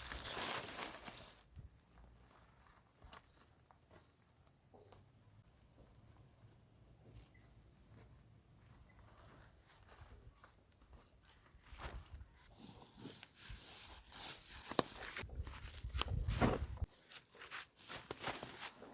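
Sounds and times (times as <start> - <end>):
insects chirping: 0.0 - 18.9.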